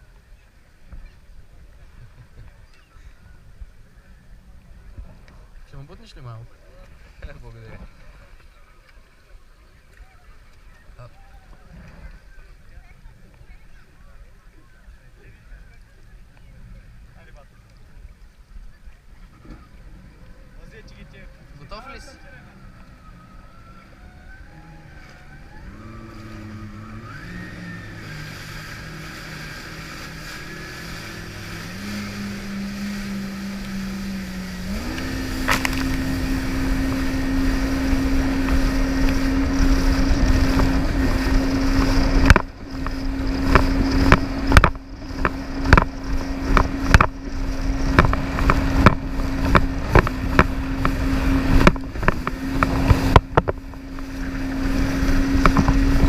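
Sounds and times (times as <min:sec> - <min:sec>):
jet ski engine: 0:00.0 - 0:56.0
sharp irregular thumps and blasts: 0:41.7 - 0:53.8.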